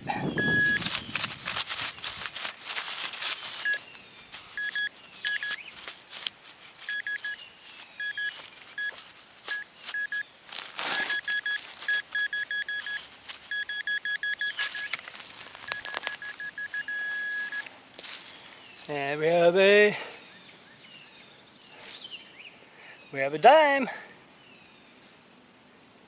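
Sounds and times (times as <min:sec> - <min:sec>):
digging in soil: 0:00.0 - 0:20.2, 0:20.8 - 0:22.2
metal detector beeping: 0:00.3 - 0:02.0, 0:03.6 - 0:05.9, 0:06.8 - 0:17.7.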